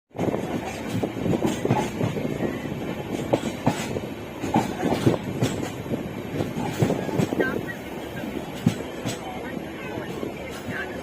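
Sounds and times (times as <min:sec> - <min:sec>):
train wheels clattering on track: 0:00.1 - 0:11.0.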